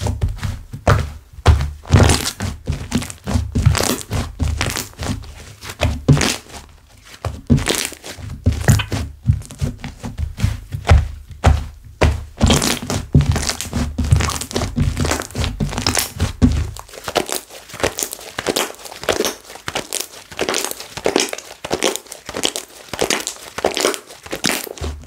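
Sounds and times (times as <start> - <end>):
slime squishing by hand: 0.0 - 25.0
air bubbles popping in slime: 16.8 - 25.0.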